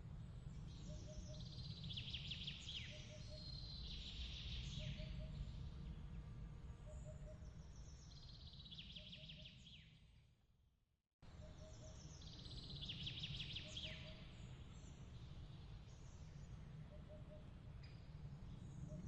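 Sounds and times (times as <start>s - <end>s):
bird chirps and trills: 11.4s - 15.0s.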